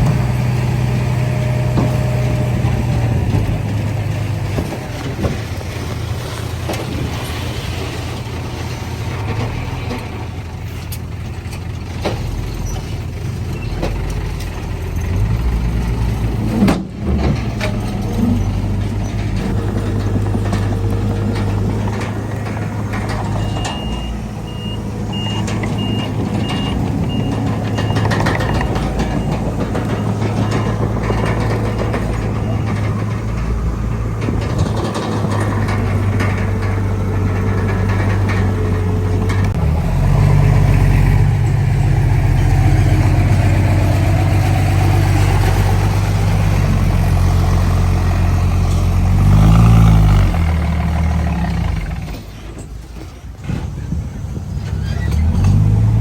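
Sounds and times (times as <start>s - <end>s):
bulldozer diesel engine under load: 0.0s - 56.0s
metal clatter: 1.6s - 24.6s, 25.3s - 55.9s
reversing alarm beeping: 23.3s - 30.9s.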